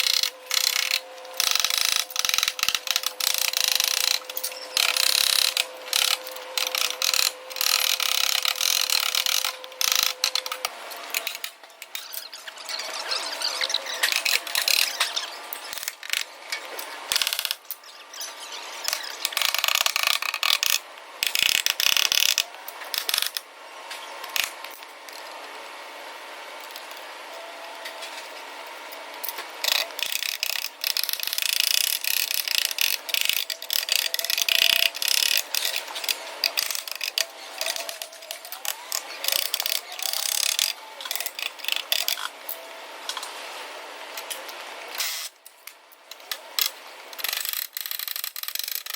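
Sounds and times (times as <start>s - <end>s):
hand tools clicking and clattering: 0.0s - 23.4s, 29.2s - 43.2s.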